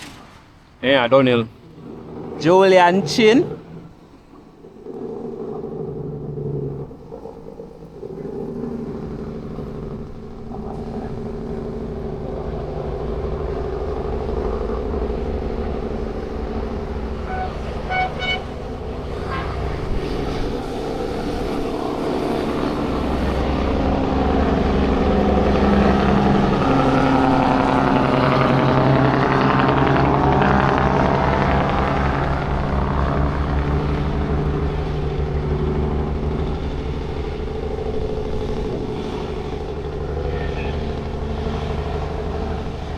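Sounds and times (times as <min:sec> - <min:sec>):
truck diesel engine braking: 0:00.0 - 0:42.9
horn toots: 0:10.0 - 0:23.8.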